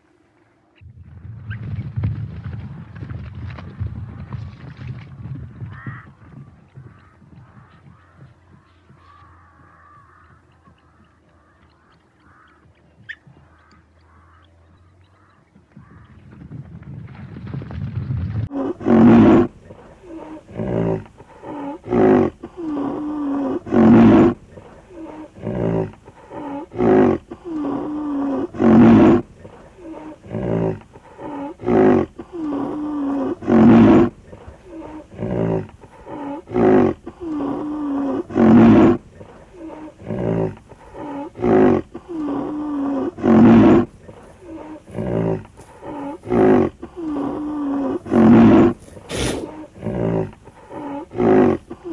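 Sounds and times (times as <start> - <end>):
rhinoceros roaring calls: 18.4 - 51.9.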